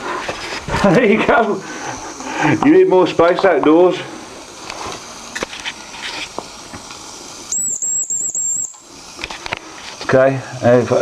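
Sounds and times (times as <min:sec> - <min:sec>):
steam engine hissing: 0:00.0 - 0:11.0
shrill steam whistle: 0:07.5 - 0:08.9.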